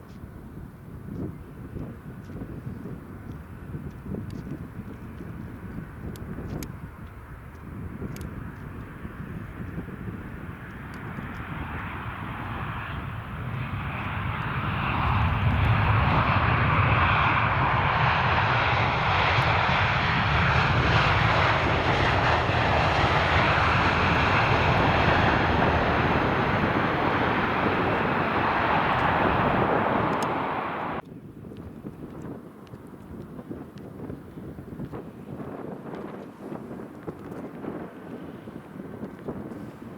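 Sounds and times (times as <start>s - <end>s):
jet engines roaring: 4.3s - 31.1s.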